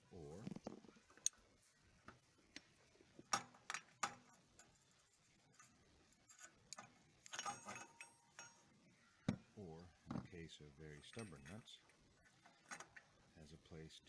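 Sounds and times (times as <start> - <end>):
metallic clicks and clinks: 5.5 - 8.7, 10.9 - 13.1.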